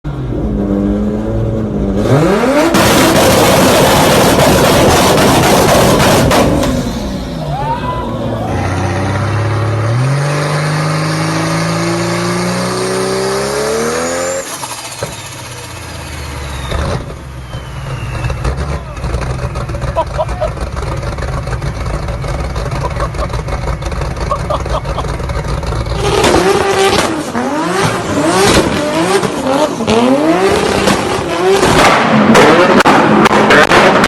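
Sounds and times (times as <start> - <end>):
turbocharged car engine revving: 0.1 - 34.0
high whistle sliding down: 14.1 - 18.6.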